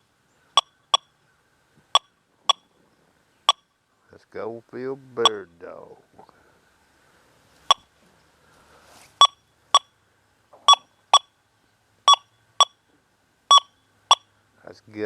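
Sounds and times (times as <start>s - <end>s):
metal detector beeps: 0.6s - 1.2s, 1.9s - 2.8s, 3.4s - 3.7s, 5.2s - 5.4s, 7.7s - 7.9s, 9.2s - 10.0s, 10.6s - 11.4s, 12.1s - 12.9s, 13.5s - 14.3s.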